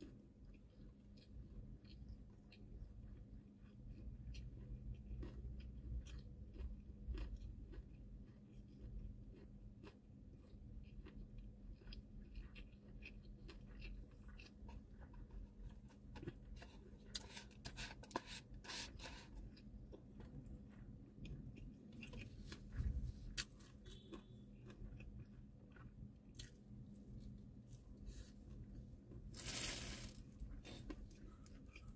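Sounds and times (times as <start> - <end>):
wet chewing with mouth clicks: 0.0 - 31.9
chopsticks scraping paper bowl: 16.5 - 19.4.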